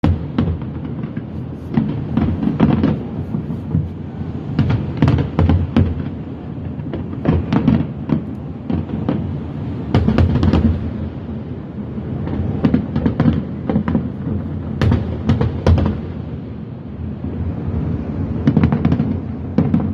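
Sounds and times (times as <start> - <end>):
fireworks bangs: 0.0 - 11.2, 12.0 - 16.6, 18.3 - 19.9.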